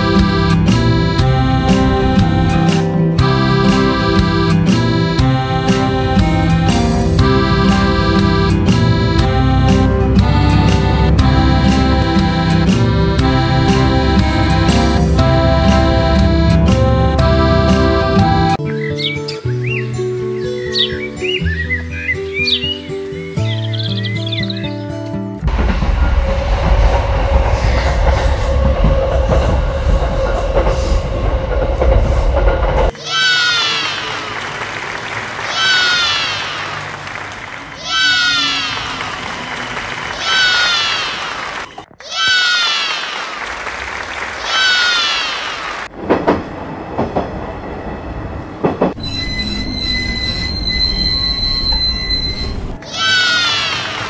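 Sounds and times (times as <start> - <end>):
train rumbling on track: 0.0 - 18.6, 25.4 - 41.9, 44.2 - 54.0
train wheels knocking: 25.5 - 32.9, 45.9 - 47.4, 48.6 - 49.0
high-pitched wheel squeal: 49.0 - 53.8.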